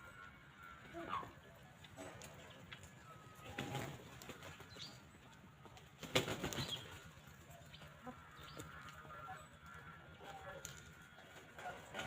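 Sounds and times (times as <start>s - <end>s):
small birds calling: 0.0s - 12.0s
chicken flapping wings: 3.4s - 4.7s, 5.8s - 7.1s.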